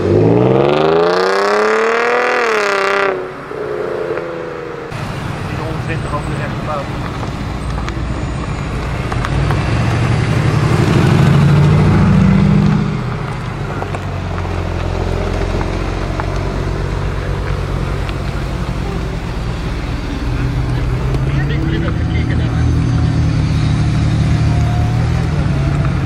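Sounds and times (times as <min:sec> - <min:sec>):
sports car accelerating: 0:00.0 - 0:26.0.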